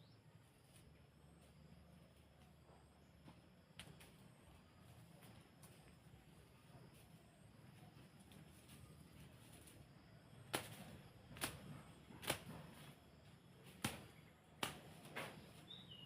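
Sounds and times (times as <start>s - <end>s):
hand tool chopping into soil: 10.5s - 12.8s, 13.7s - 15.4s.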